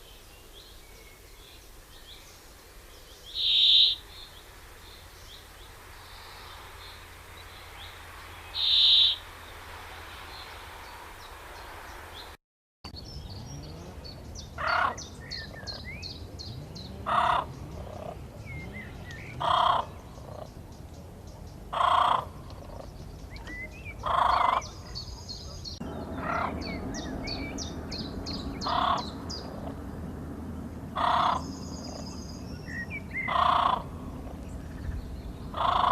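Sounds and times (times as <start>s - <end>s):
lower bird call: 0.0s - 12.4s, 21.7s - 30.1s, 30.9s - 35.9s
small bird chirps: 3.0s - 9.2s.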